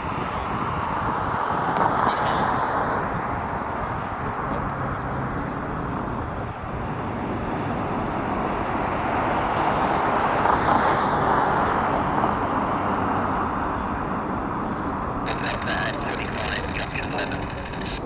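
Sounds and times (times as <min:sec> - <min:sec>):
helicopter turbine and rotor: 0:15.3 - 0:18.0.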